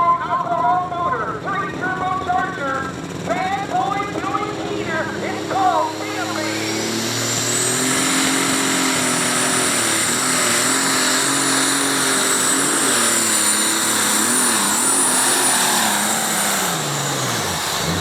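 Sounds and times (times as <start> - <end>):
diesel engine at full throttle: 0.0 - 18.0
high turbo whistle: 5.6 - 18.0.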